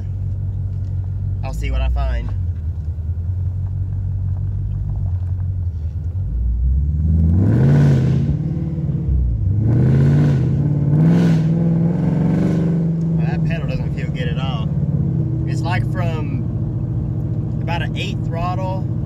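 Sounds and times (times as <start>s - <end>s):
car engine revving from inside cabin: 6.3s - 18.2s.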